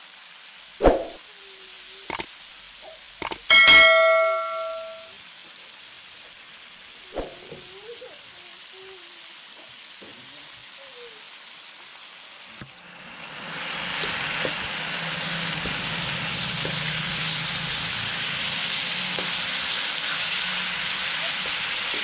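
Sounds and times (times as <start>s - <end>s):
ribs sizzling in a hot wok: 0.0s - 22.0s
click: 2.1s - 2.3s, 3.2s - 3.5s.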